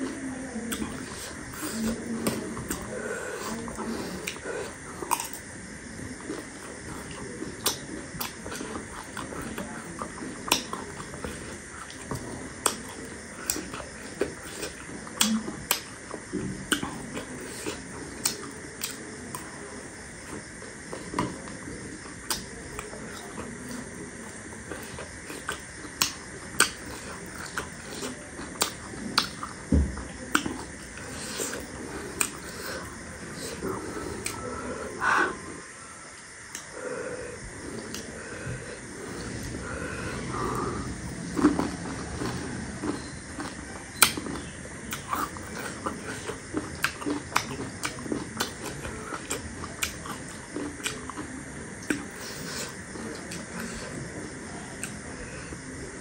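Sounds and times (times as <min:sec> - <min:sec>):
chewing crunchy snack: 0:00.0 - 0:35.4, 0:37.6 - 0:55.6.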